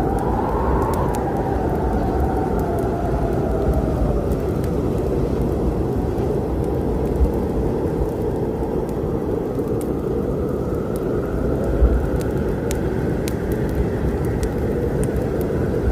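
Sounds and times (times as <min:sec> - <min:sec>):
rolling thunder rumble: 0:00.0 - 0:09.0
steady rain: 0:00.0 - 0:15.9
wood fire popping: 0:00.0 - 0:15.9.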